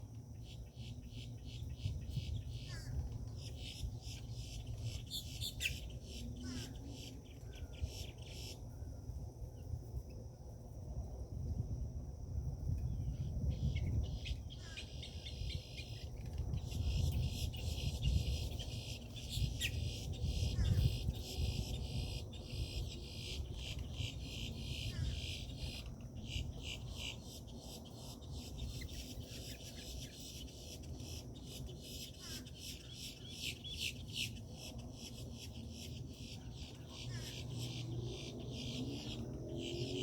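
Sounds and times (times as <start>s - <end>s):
high insect trill: 0.0s - 40.0s.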